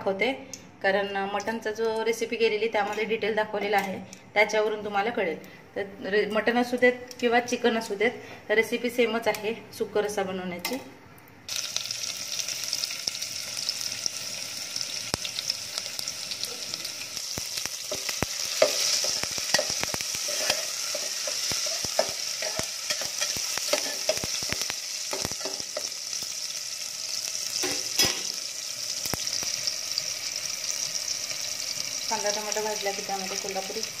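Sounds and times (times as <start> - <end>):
frying sizzle in a pan: 11.5 - 34.0
spatula scraping and knocking pan: 17.9 - 25.9.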